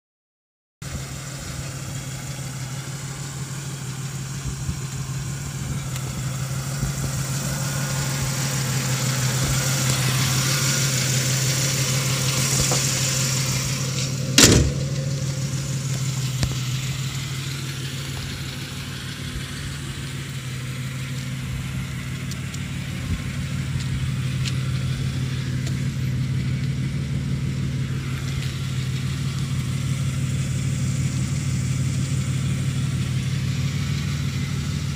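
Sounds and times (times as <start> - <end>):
car engine idling: 0.8 - 34.9
sharp knock: 14.4 - 15.0.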